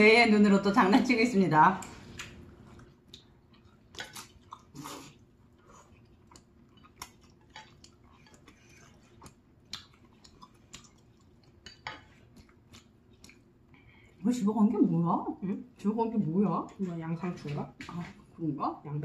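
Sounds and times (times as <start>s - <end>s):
person chewing noodles: 1.8s - 14.2s.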